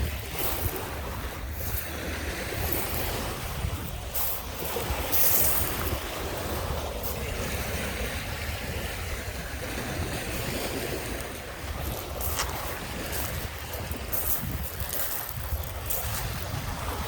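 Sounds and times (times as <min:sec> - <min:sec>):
water splash: 0:00.0 - 0:08.4
waves washing onto beach: 0:00.0 - 0:17.0
wind buffeting microphone: 0:00.0 - 0:17.0.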